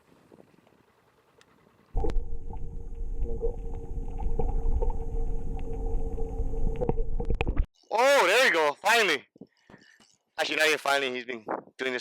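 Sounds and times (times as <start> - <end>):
motor running with deep rumble: 1.9 - 7.7.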